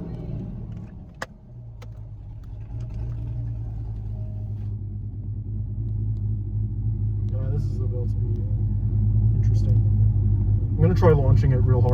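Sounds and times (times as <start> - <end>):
car engine idling: 0.0 - 5.6.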